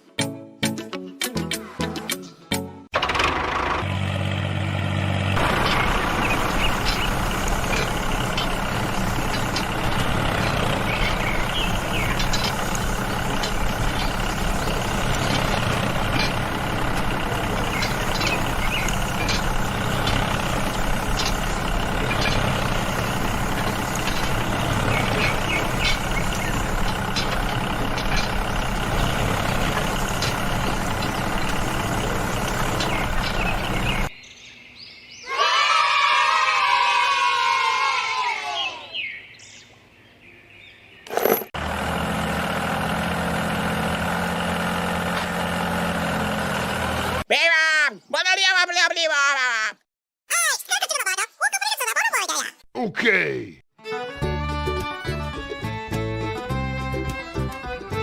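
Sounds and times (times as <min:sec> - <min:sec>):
small motor running: 0:05.4 - 0:34.1.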